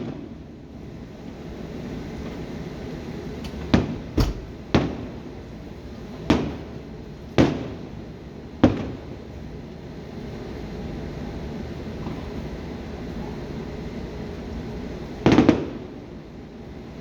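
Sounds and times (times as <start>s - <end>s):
low background hum: 0.0s - 17.0s
fireworks booming: 3.4s - 5.3s.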